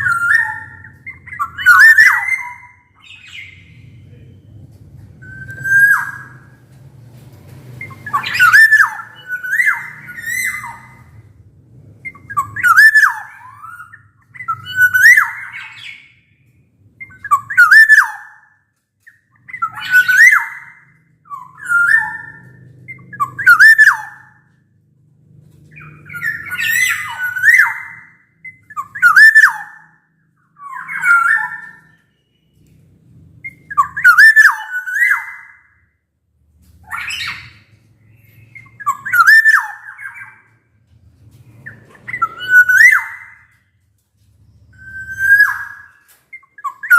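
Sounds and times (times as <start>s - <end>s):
bird singing fluty whistled phrases: 0.0s - 4.3s, 5.2s - 6.6s, 7.8s - 11.2s, 12.0s - 16.3s, 17.0s - 24.4s, 25.7s - 30.0s, 30.6s - 32.6s, 33.4s - 35.8s, 36.8s - 40.5s, 41.6s - 43.6s, 44.5s - 46.9s.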